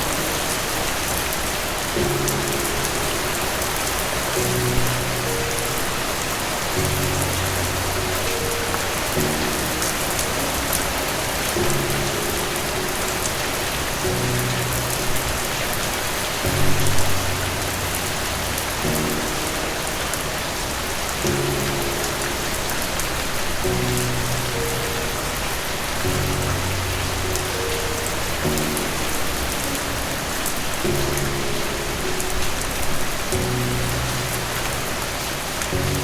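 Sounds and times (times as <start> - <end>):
rain on hard surface: 0.0 - 36.0
soft sustained music chords: 0.0 - 36.0.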